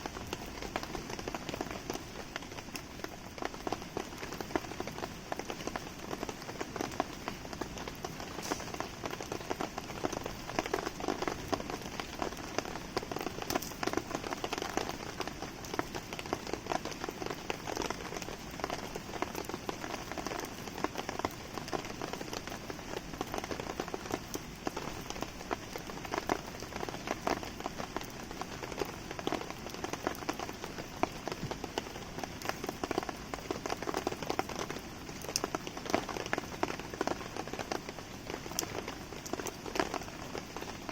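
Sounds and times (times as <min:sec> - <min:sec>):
campfire burning: 0:00.0 - 0:40.9
rain pattering: 0:00.0 - 0:40.9
small sharp ticks: 0:13.5 - 0:13.8.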